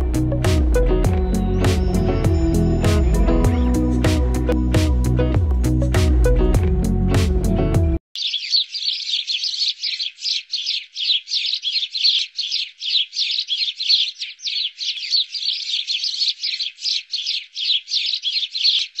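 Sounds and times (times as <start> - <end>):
bird chirping rapidly: 1.0 - 5.2, 8.2 - 19.0.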